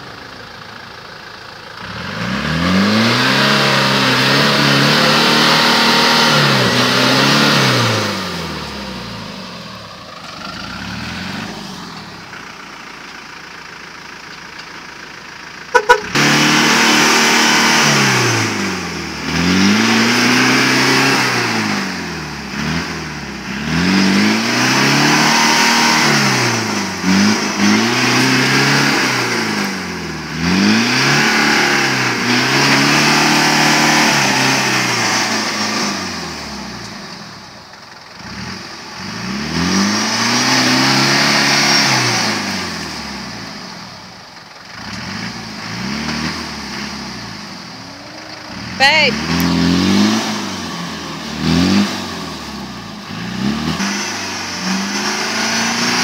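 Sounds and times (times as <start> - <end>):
engine revving: 1.7 - 13.2, 15.6 - 56.0.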